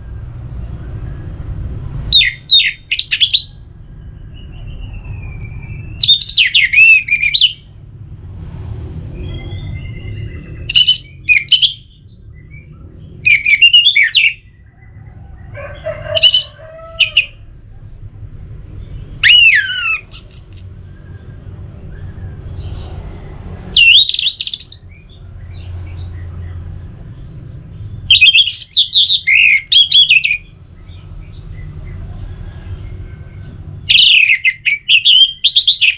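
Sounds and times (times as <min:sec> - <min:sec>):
thrush singing whistled phrases: 0:02.1 - 0:03.6, 0:04.4 - 0:07.7, 0:09.2 - 0:14.5, 0:19.2 - 0:21.2, 0:23.7 - 0:25.0, 0:28.1 - 0:30.5, 0:33.9 - 0:35.9.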